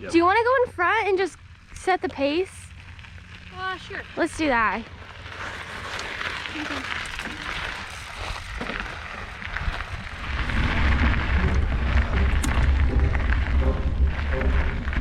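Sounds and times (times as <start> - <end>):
mountain bike rumble: 0.0 - 15.0
wind buffeting microphone: 9.3 - 15.0.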